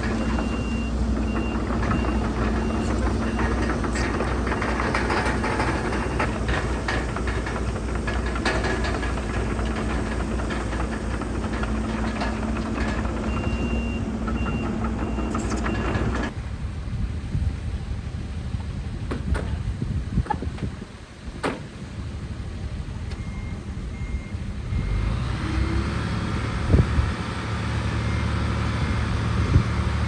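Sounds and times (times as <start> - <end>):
reversing alarm beeping: 0.0 - 6.7, 11.5 - 16.3
clattering knocks: 0.0 - 16.3
diesel engine running: 0.0 - 30.0.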